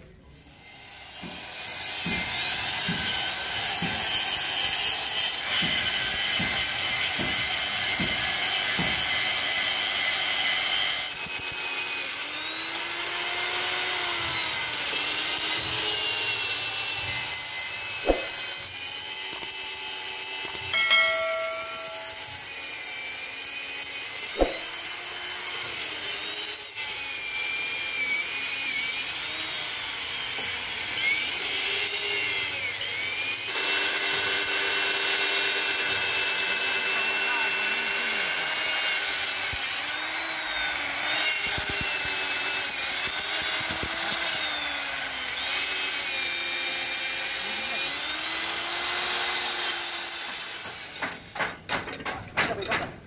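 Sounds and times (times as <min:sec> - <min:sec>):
electric drill boring into steel: 0:00.0 - 0:52.0
harsh grinding sound: 0:00.6 - 0:51.7
sharp metal clicks: 0:20.4 - 0:22.4.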